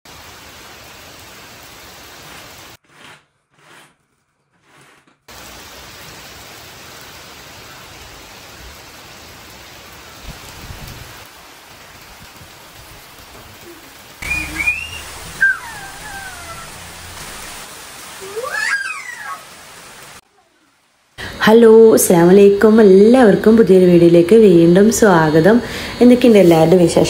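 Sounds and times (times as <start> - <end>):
heavy rain on pavement: 0.0 - 2.8, 5.3 - 21.2.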